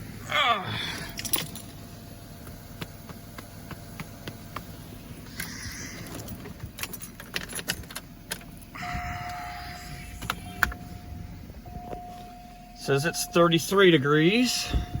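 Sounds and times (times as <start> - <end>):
car keys jangling: 1.0 - 1.9, 6.0 - 9.0
steady electronic tone: 8.8 - 13.7.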